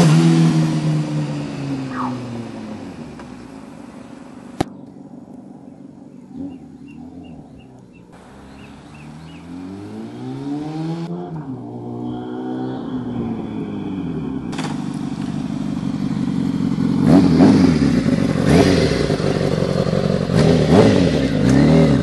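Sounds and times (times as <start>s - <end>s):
motorcycle engine revving: 0.0s - 22.0s
sharp snap: 4.6s - 4.8s.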